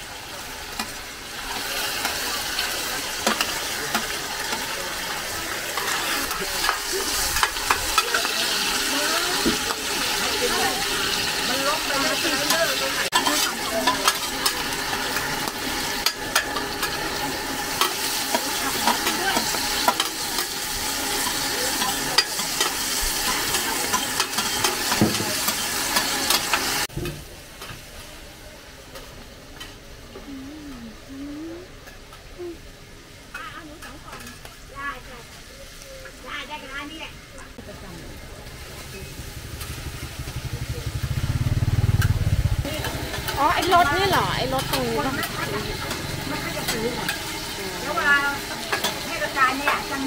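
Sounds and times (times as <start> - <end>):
batter sizzling in oil: 0.0 - 30.2, 33.0 - 50.0
metal spatulas scraping a pan: 5.7 - 17.0, 17.7 - 26.8.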